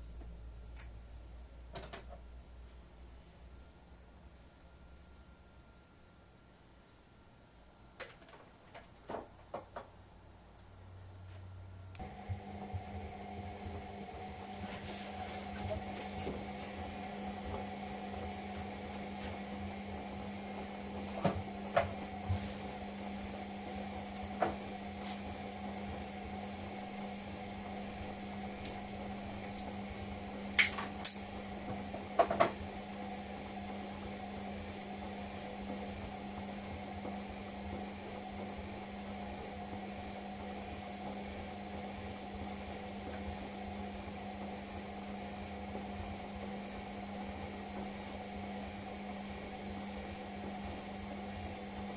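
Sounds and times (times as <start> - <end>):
washing machine humming: 10.8 - 51.9.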